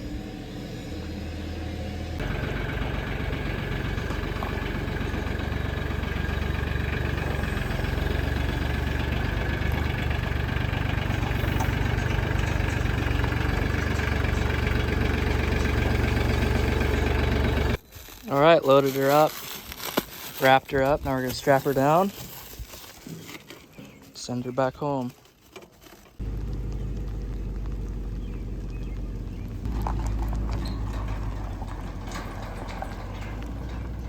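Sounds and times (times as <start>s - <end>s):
engine idling: 0.0s - 17.8s, 26.2s - 34.0s.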